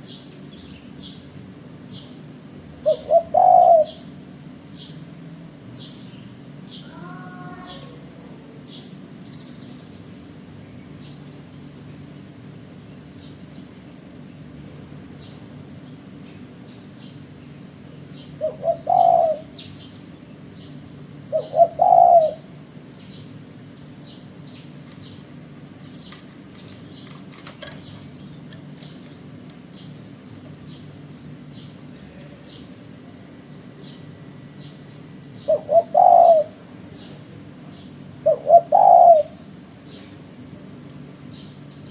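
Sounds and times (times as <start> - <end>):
steady low hum: 0.0 - 41.9
dove cooing: 2.8 - 4.2, 6.8 - 8.9, 18.2 - 19.7, 21.2 - 22.6, 35.4 - 37.2, 38.2 - 39.6.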